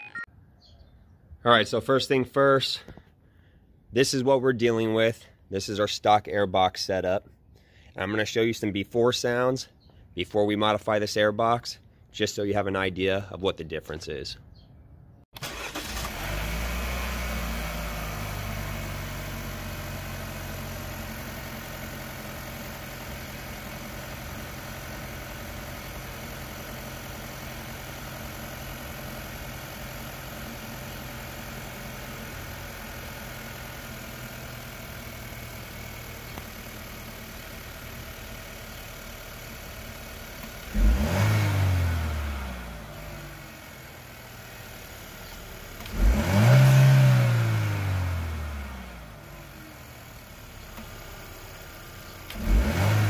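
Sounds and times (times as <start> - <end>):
engine revving: 15.4 - 27.2, 40.4 - 44.4, 45.7 - 50.0, 52.2 - 53.0
car engine idling: 15.4 - 53.0.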